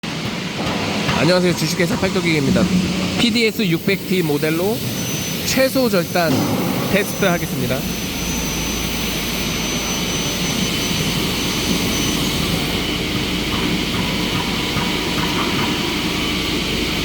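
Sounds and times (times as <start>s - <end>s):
saw motors running: 0.1s - 17.0s.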